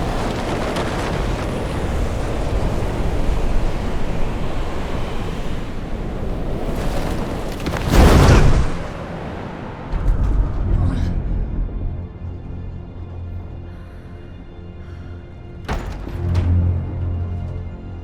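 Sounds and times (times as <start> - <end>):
sea surf: 0.0 - 10.7
deep rumble: 0.0 - 18.0
wind: 0.0 - 18.0.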